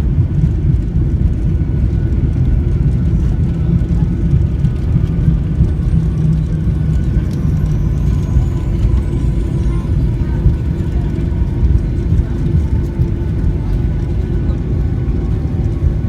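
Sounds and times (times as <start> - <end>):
airplane engines rumbling: 0.0 - 16.0
faint thin whine: 3.2 - 16.0.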